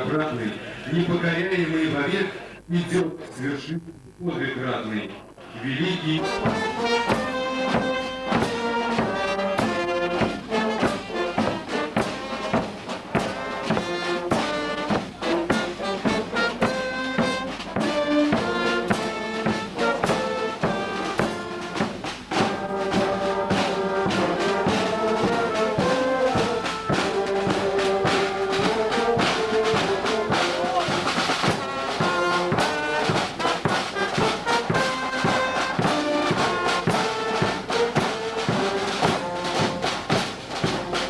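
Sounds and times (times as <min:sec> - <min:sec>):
brass band playing: 0:00.0 - 0:03.4, 0:05.2 - 0:41.0.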